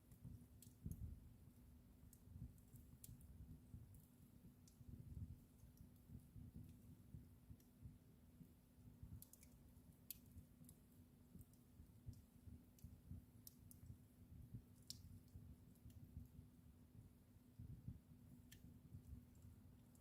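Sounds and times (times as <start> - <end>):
fireplace fire crackling: 0.0 - 20.0.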